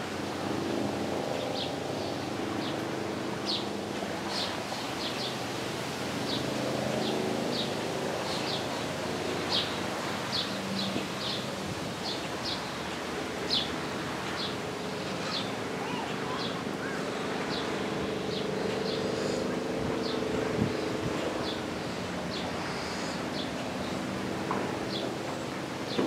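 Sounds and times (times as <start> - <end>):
low engine drone: 0.0 - 26.0.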